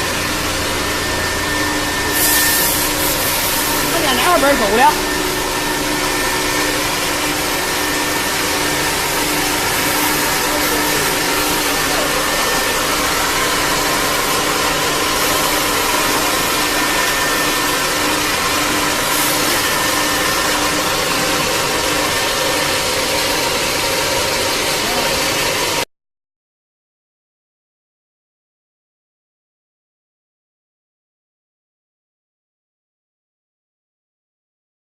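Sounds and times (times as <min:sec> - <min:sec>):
wood router running: 0:00.0 - 0:25.8.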